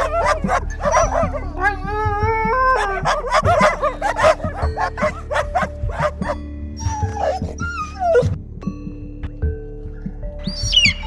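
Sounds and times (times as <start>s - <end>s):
animal whining calls: 0.0s - 8.3s
animal yelps: 0.0s - 8.3s
background music: 0.0s - 11.0s.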